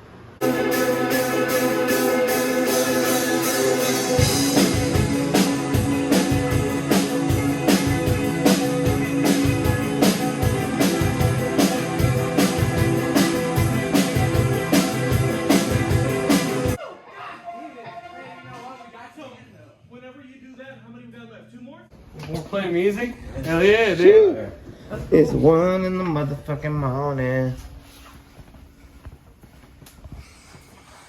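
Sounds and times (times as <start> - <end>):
rock band playing: 0.4 - 16.8.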